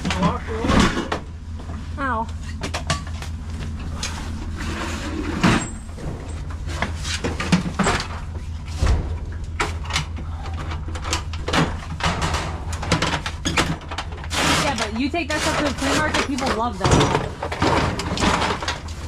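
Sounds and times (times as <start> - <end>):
steady low rumble: 0.0 - 19.0
boxes and lids clanking: 2.6 - 19.0.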